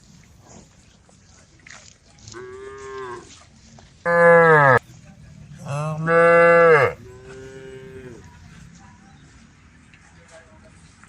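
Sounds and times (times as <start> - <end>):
cows mooing: 4.1 - 4.8, 5.6 - 8.3.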